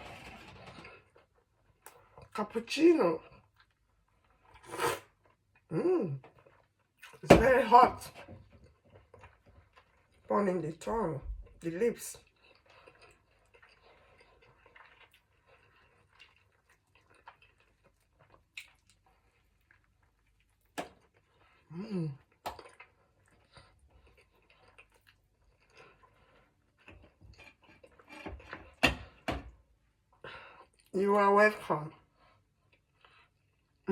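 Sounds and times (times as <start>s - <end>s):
chewing and eating: 3.2s - 7.2s, 8.1s - 10.3s, 11.3s - 29.2s, 32.0s - 33.9s.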